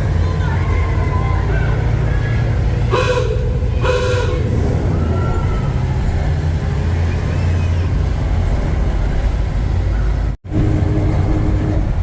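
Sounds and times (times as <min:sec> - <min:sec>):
bus engine and road rumble: 0:00.0 - 0:12.0
horn tooting: 0:02.9 - 0:04.6.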